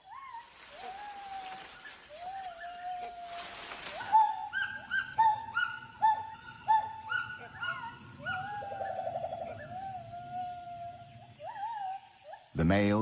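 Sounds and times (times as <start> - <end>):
gibbon whooping calls: 4.0 - 12.0.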